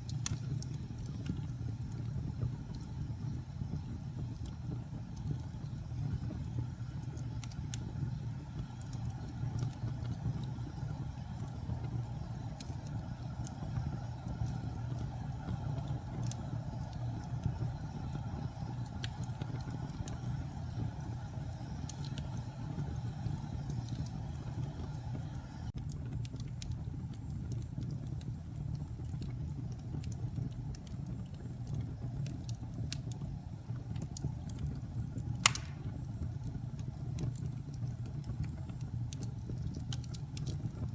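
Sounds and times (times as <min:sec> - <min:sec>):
fire burning in fireplace: 0:00.0 - 0:40.9
fire crackling: 0:00.0 - 0:40.9
sharp loud pop of fire: 0:35.4 - 0:35.9.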